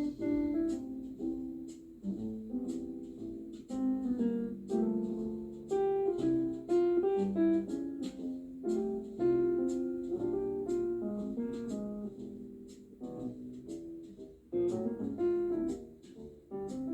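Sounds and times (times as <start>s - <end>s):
gentle piano-like melody: 0.0s - 16.9s.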